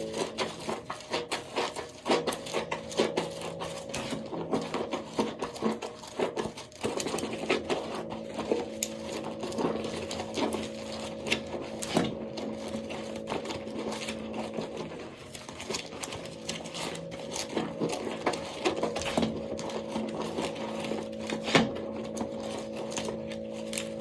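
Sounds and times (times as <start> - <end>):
soap crackling and crunching: 0.0 - 24.0
low hum: 6.8 - 24.0.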